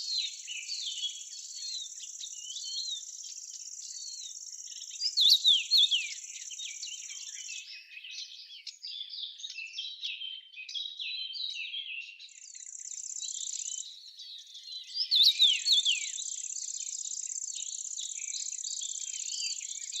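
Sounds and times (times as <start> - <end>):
sharp loud bird calls: 0.0 - 9.6, 12.2 - 20.0
small birds chirping: 0.0 - 20.0.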